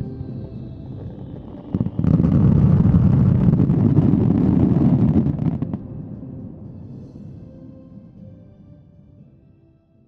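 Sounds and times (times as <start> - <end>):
fireworks bursting and crackling: 1.2 - 5.8.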